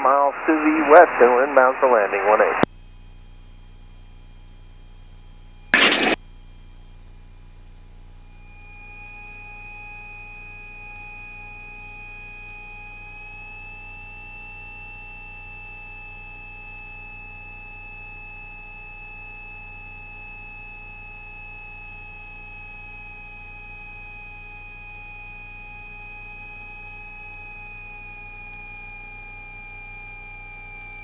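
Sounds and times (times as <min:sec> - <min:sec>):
high-pitched electrical whine: 0:05.5 - 0:06.2
low hum: 0:05.8 - 0:06.2.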